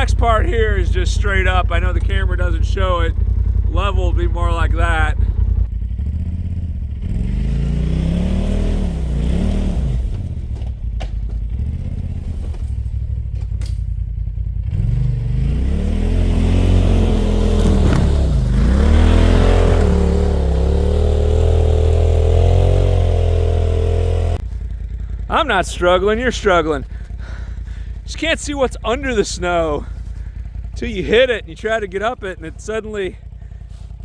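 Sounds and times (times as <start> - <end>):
tires spinning in snow: 0.0 - 13.8, 14.6 - 34.0
off-road vehicle engine revving: 0.0 - 34.0.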